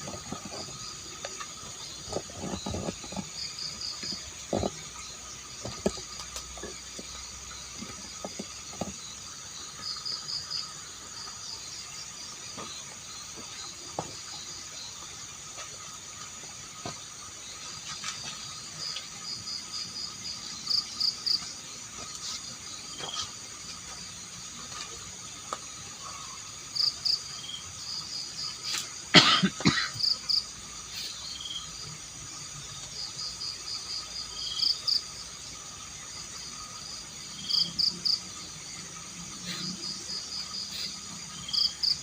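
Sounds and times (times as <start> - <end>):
crickets chirping: 0.0 - 42.0
high-pitched insect drone: 29.7 - 42.0.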